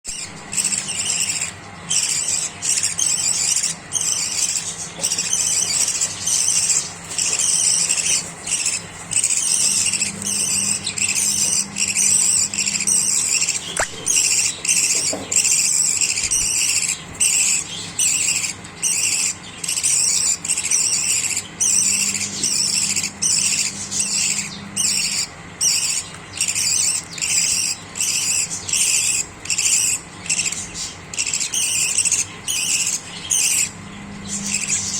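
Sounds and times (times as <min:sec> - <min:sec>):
budgerigars chattering: 0:00.1 - 0:34.9.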